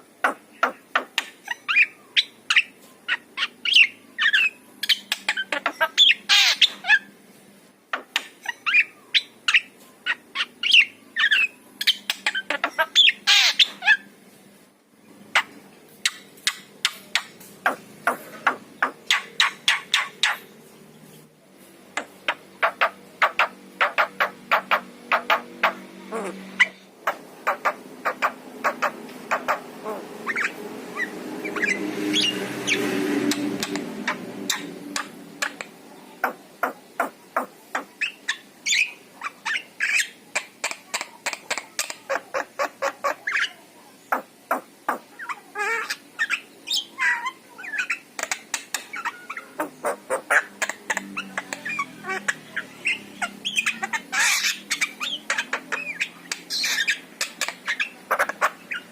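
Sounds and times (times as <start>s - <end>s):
myna calling with clicking chatter: 39.2s - 58.9s.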